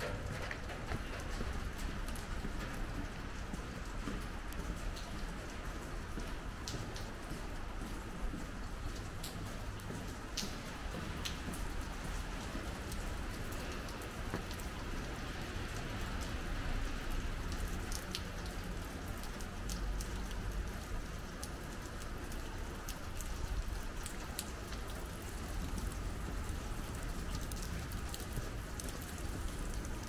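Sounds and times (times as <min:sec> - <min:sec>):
raindrops ticking sharply: 0:00.0 - 0:30.0
steady rain falling: 0:00.0 - 0:30.0.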